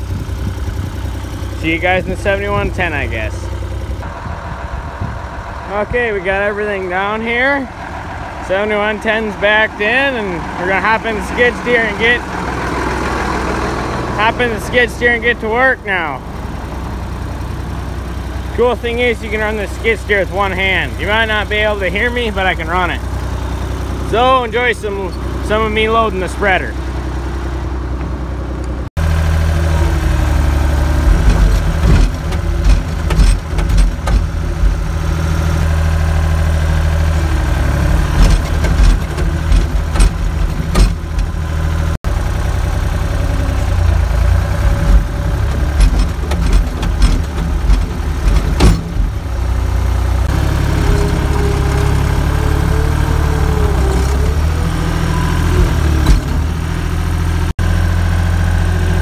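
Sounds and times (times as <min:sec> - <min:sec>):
skid steer engine running: 0:00.0 - 0:59.0
sharp knocks and clanks: 0:31.0 - 0:35.3, 0:38.0 - 0:41.6, 0:44.6 - 0:51.9, 0:55.5 - 0:56.8.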